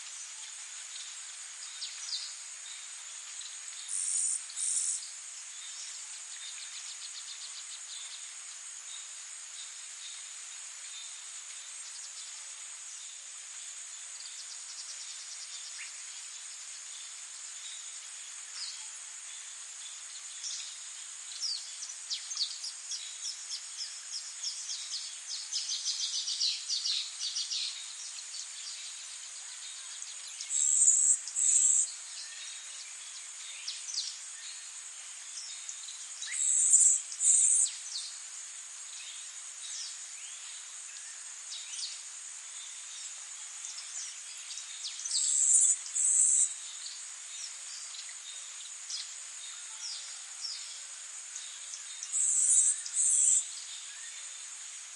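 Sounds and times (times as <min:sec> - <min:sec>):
small birds chirping: 0:19.5 - 0:38.2, 0:38.9 - 0:54.4.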